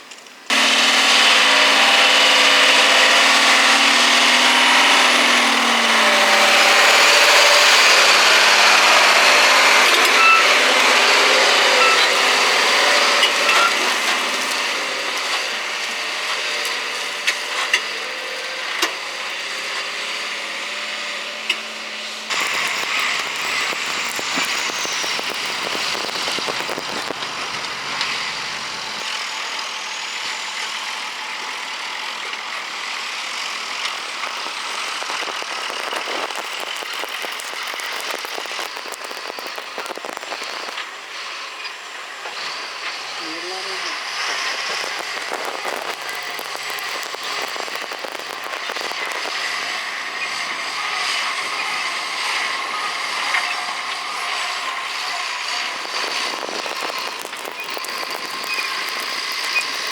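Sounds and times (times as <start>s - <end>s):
road noise: 0.0s - 59.9s
truck diesel engine under load: 0.4s - 59.9s.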